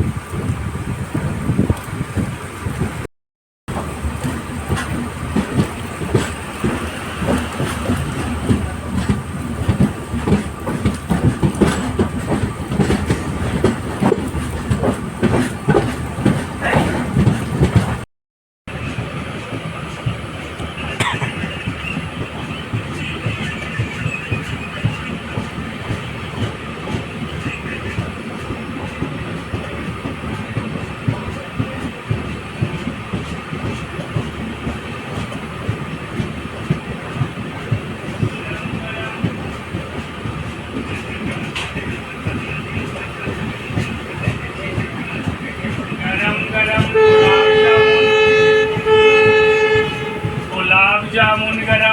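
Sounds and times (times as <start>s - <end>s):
train running rumble: 0.0s - 3.1s, 3.7s - 18.1s, 18.7s - 51.9s
wheels clattering over rail joints: 3.7s - 18.0s.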